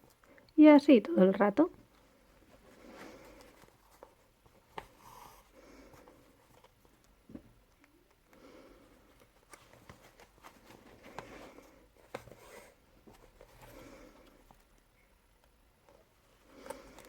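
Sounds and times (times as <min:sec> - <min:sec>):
faint rustling: 0:01.8 - 0:07.6, 0:08.3 - 0:15.1.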